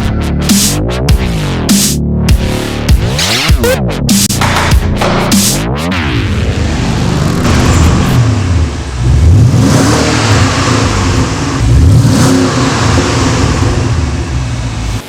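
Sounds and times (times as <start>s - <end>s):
car exhaust revving: 4.4s - 15.0s.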